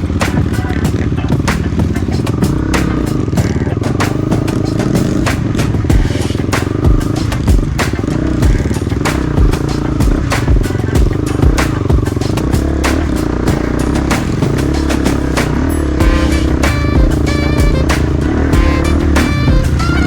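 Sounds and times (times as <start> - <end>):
motorcycle engine running: 0.0 - 20.0
heavy low thuds: 16.0 - 19.9.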